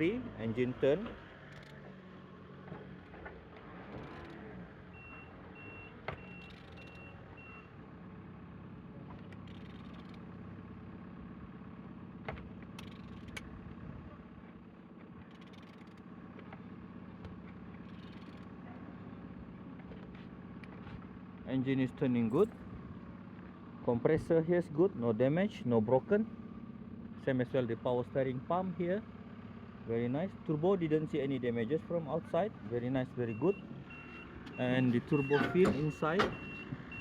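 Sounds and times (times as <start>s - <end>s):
low mechanical hum: 0.8s - 21.5s
engine clicks and knocks: 8.9s - 21.5s, 33.5s - 37.0s
short high beeps: 35.1s - 37.0s.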